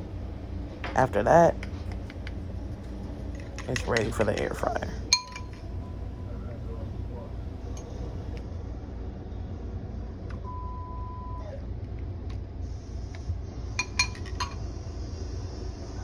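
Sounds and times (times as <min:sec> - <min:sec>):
steady low hum: 0:00.0 - 0:10.6, 0:12.5 - 0:15.9
kitchen clicks and clinks: 0:00.8 - 0:08.4, 0:13.8 - 0:14.6.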